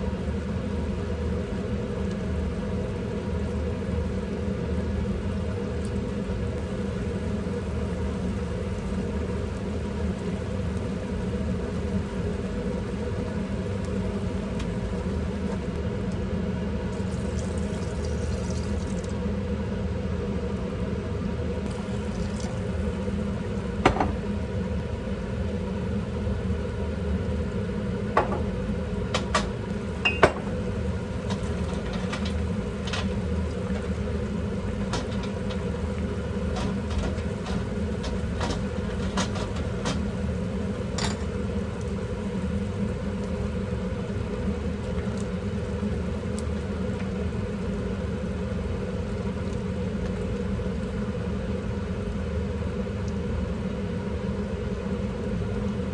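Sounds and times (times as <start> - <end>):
kitchen appliance humming: 0.0 - 55.9
utensils clinking on dishes: 30.0 - 30.5.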